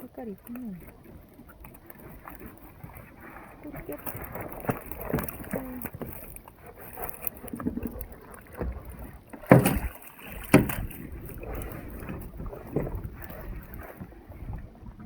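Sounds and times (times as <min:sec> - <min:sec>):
water against hull: 0:00.0 - 0:15.0
gear knocking and rattling: 0:08.8 - 0:13.4
sharp thuds: 0:09.4 - 0:10.9.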